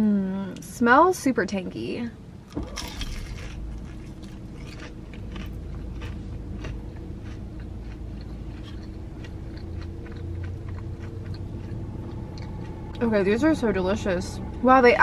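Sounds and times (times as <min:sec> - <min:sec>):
low hum: 0:01.3 - 0:15.0
crunching and chewing egg roll: 0:02.5 - 0:13.0.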